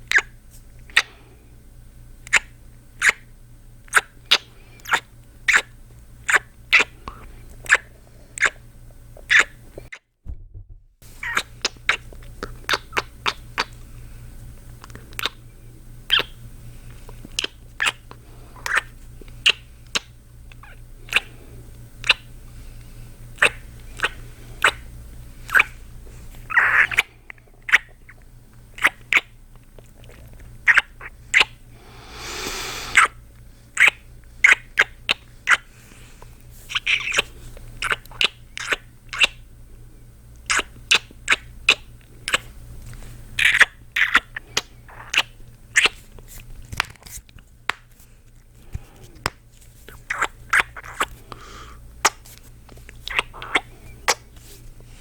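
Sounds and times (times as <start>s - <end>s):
wet kissing smacks: 6.3s - 8.6s, 11.2s - 13.7s, 15.2s - 15.4s, 18.6s - 21.3s, 23.4s - 24.8s, 25.5s - 25.7s, 26.5s - 27.1s, 30.7s - 31.5s, 32.3s - 33.2s, 33.8s - 35.6s, 36.7s - 39.4s, 40.5s - 42.4s, 43.4s - 46.0s, 50.0s - 51.1s, 52.0s - 52.4s, 53.0s - 54.2s
man breathing: 31.7s - 33.0s.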